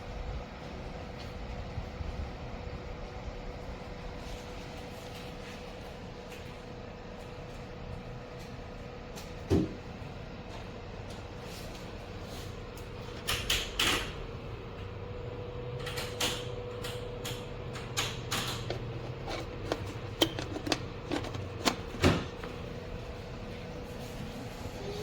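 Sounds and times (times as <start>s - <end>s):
steady low hum: 0.0s - 25.0s
plastic appliance clicks and knocks: 17.9s - 22.6s.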